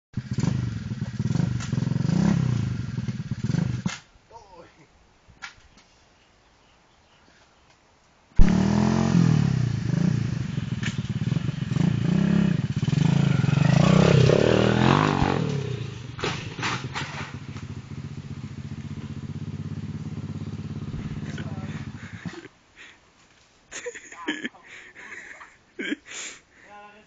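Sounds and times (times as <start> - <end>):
small motorbike engine revving: 0.2 - 4.0, 8.4 - 22.5
sharp engine clicks: 0.3 - 1.8.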